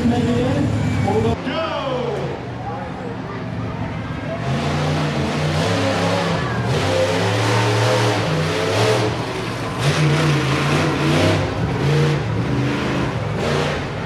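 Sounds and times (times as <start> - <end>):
truck engines revving: 0.0 - 14.0.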